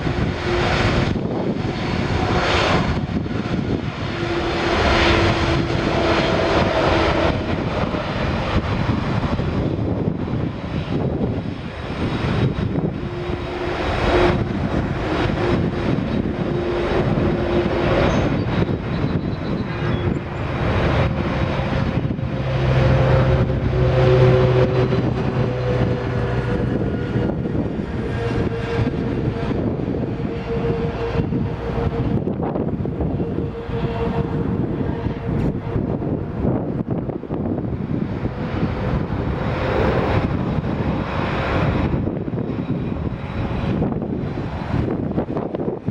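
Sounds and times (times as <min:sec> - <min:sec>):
jet engines whining and rumbling: 0:00.0 - 0:45.9.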